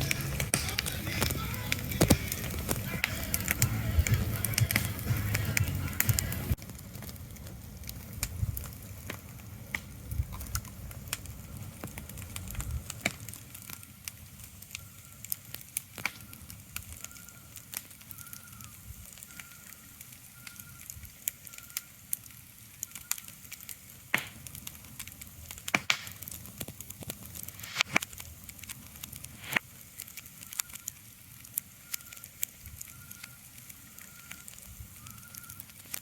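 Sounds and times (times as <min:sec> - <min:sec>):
low rumble: 0:00.0 - 0:12.9
sharp crackles and pops: 0:00.0 - 0:36.0
soft steady hiss: 0:00.0 - 0:36.0.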